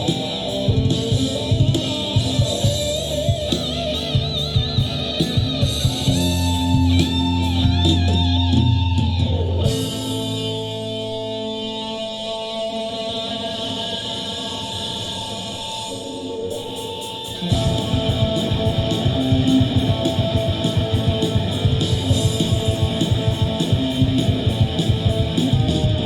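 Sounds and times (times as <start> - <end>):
live rock band playing: 0.0 - 15.9, 16.5 - 26.0
drums: 0.0 - 26.0
wavering lead guitar: 0.0 - 26.0.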